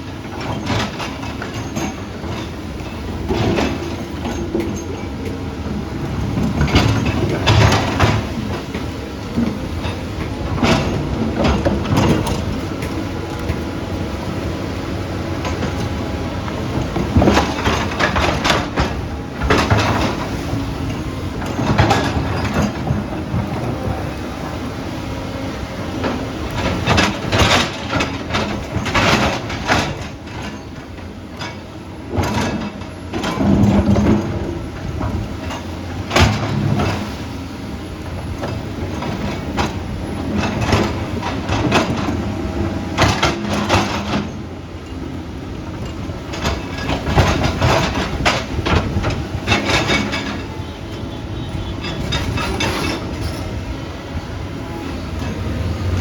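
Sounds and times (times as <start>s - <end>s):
metal clanks and scrapes: 46.3s - 53.7s.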